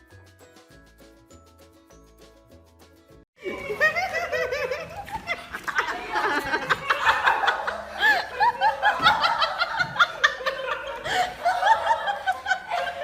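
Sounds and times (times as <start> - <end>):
high-pitched laughter: 3.4 - 13.0.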